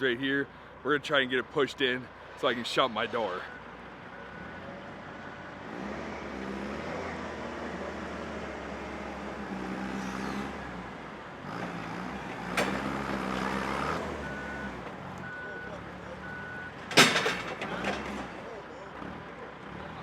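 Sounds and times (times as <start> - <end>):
vehicle engine revving: 4.3 - 16.6.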